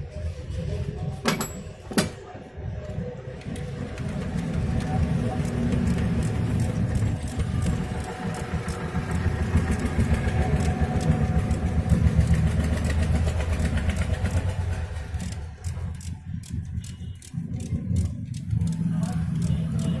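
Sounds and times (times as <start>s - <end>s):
engine running: 4.0s - 16.3s.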